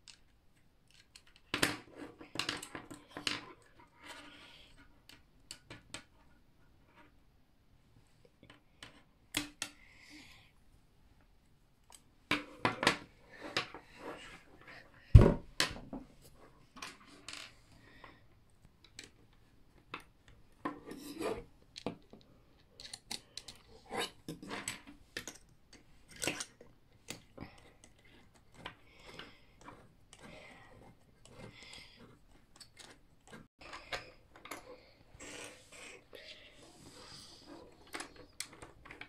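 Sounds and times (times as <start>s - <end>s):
toy parts clicking and clattering: 0.0s - 3.7s, 20.9s - 34.7s.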